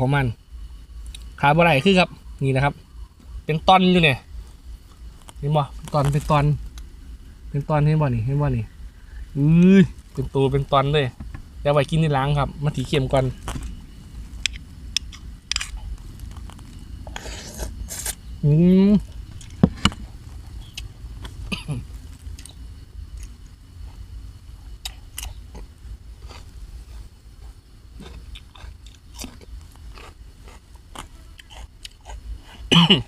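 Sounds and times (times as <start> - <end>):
person chewing and crunching: 12.8 - 18.2, 19.1 - 33.0.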